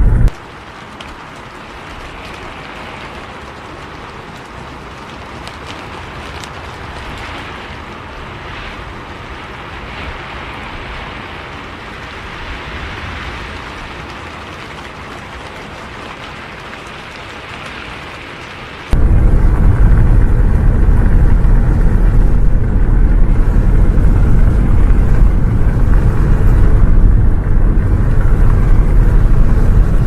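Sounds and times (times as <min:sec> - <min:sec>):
low vehicle rumble: 0:00.0 - 0:00.3, 0:18.9 - 0:30.0
steady rain: 0:00.0 - 0:30.0
raindrop ticks: 0:00.1 - 0:10.1, 0:11.2 - 0:30.0.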